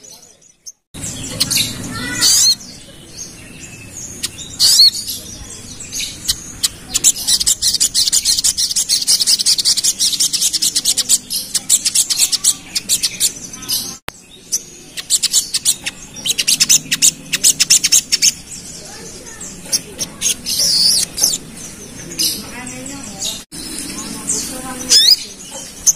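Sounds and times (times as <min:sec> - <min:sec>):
bird chipping rapidly: 0:00.0 - 0:25.9.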